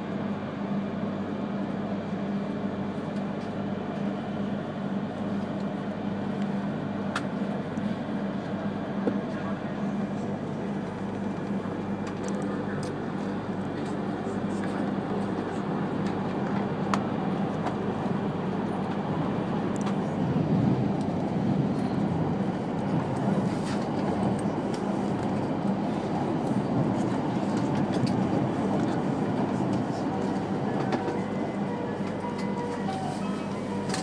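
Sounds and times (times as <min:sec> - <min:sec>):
constant low hum: 0:00.2 - 0:34.0
train wheels rumbling: 0:10.2 - 0:34.0.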